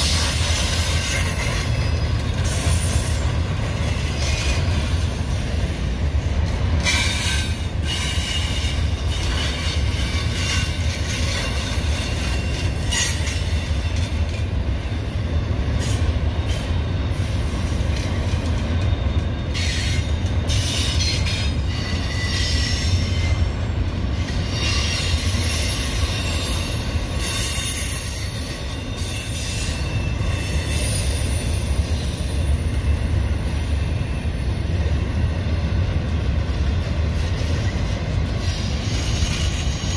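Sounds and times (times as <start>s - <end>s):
train wheels rumbling on rail: 0.0s - 39.9s
wheel squeal: 24.4s - 32.7s, 38.4s - 39.9s.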